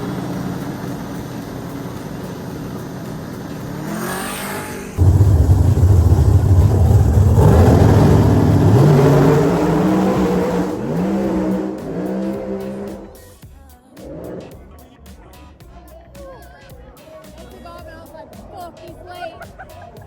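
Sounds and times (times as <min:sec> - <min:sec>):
drag race car engine revving: 0:00.0 - 0:13.3, 0:14.0 - 0:14.6.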